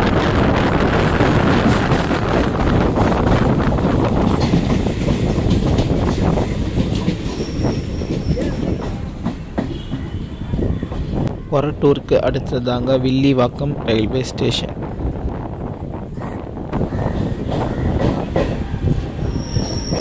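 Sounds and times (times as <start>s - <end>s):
train wheels rumbling on rails: 0.0s - 20.0s
wheels clacking over rail joints: 1.0s - 11.3s
high wheel squeal: 7.2s - 9.0s, 19.2s - 20.0s.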